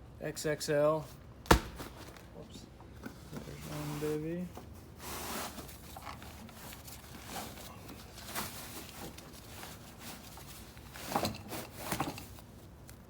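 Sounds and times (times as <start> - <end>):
packaging rustling and scraping: 3.1 - 12.8.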